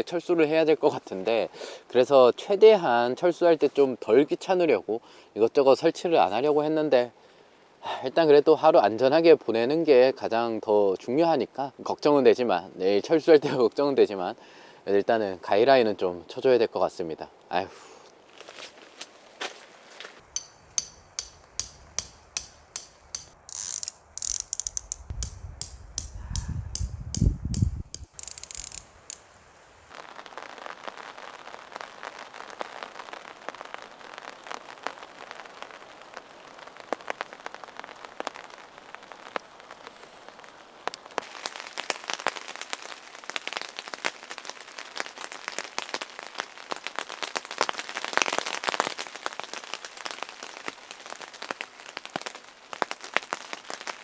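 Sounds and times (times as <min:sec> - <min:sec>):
ratchet-like mechanical clicks: 0:20.4 - 0:29.9
rain pattering on a tent: 0:29.9 - 0:54.0.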